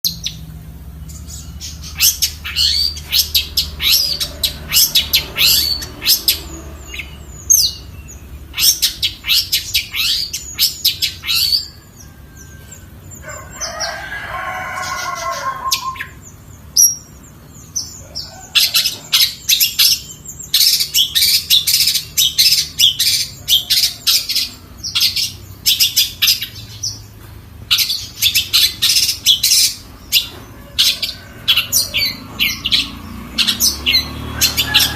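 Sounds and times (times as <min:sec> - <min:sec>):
bird sharp chattering song: 0:00.0 - 0:13.8, 0:14.8 - 0:34.9
bird tuneful warbling: 0:14.8 - 0:17.1.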